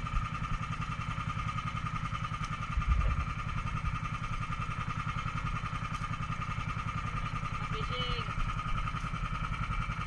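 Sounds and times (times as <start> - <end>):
boat engine chugging: 0.0 - 10.0.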